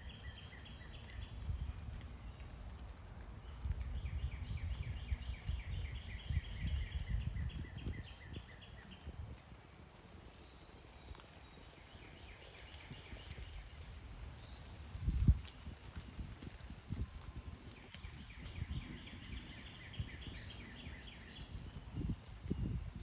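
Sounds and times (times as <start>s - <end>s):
songbird chirping: 17.7s - 22.1s.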